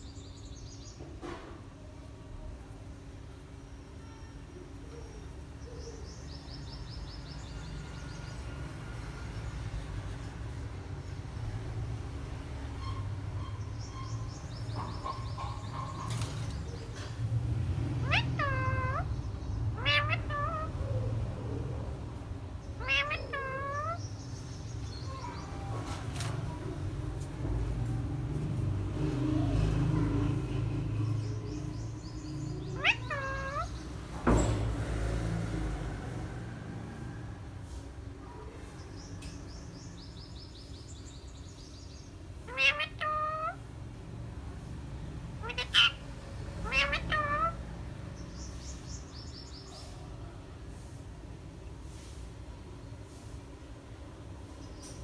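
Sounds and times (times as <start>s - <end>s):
parrot chirping: 12.8s - 17.0s, 18.0s - 21.0s, 22.7s - 25.4s, 31.3s - 33.8s, 42.5s - 43.6s, 45.4s - 47.7s
parrot loud rising call: 18.0s - 19.1s, 19.8s - 20.9s, 42.5s - 43.6s, 45.4s - 46.0s, 46.6s - 47.6s
cat meowing: 18.0s - 21.1s, 22.7s - 24.0s, 32.7s - 33.8s, 42.5s - 43.6s, 45.4s - 46.0s, 46.6s - 47.7s.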